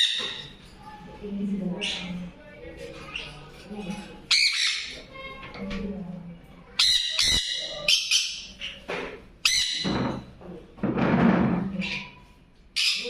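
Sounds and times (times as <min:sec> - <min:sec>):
parrots squawking: 0:00.0 - 0:00.6, 0:01.8 - 0:05.3, 0:06.8 - 0:10.3, 0:11.8 - 0:13.0.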